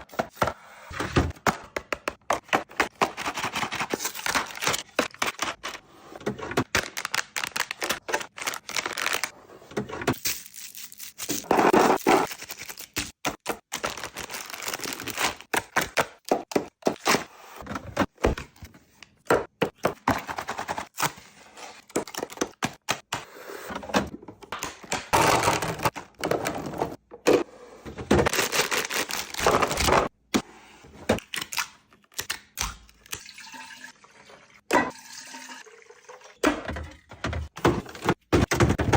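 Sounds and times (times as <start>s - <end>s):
packaging rustling: 6.7s - 9.3s, 13.7s - 15.6s, 28.3s - 29.9s.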